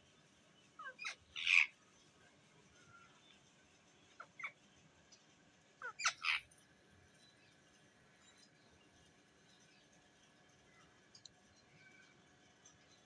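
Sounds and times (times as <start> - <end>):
parrot squawking and chirping: 0.8 - 1.7, 5.8 - 6.4.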